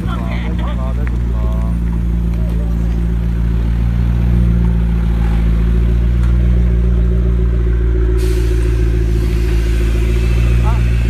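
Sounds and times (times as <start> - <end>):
car engine idling: 0.0 - 11.0
hissing rush: 8.0 - 11.0.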